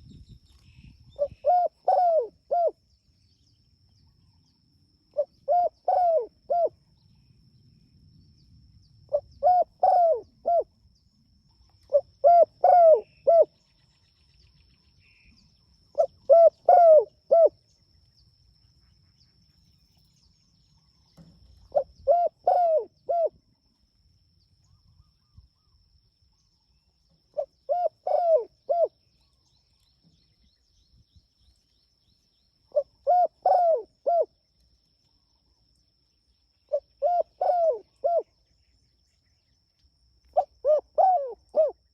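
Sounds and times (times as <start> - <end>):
dove cooing: 1.1 - 2.8, 5.2 - 6.8, 9.1 - 10.7, 11.8 - 13.5, 16.0 - 17.6, 21.6 - 23.4, 27.3 - 28.9, 32.7 - 34.3, 36.7 - 38.3, 40.4 - 41.8.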